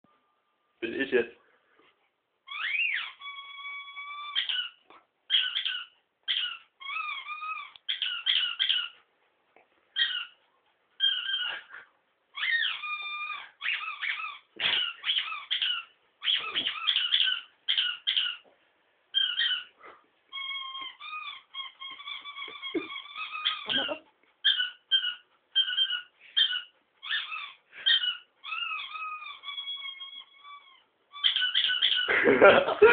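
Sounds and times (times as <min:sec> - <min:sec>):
high-pitched squeaks: 0:20.3 - 0:32.1.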